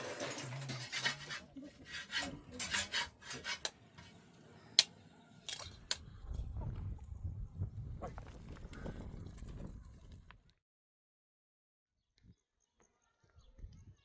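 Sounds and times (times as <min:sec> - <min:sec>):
rasping scraping strokes: 0:00.0 - 0:04.2.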